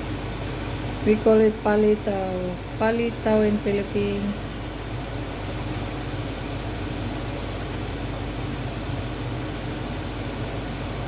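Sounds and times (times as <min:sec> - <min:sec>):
mechanical hum with hiss: 0:00.0 - 0:11.0.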